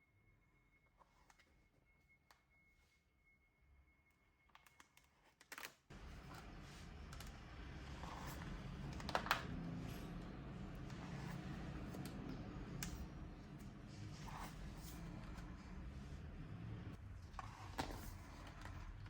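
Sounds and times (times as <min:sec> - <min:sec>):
packaging clicks and taps: 0:04.6 - 0:15.6
low room hum: 0:05.9 - 0:19.0.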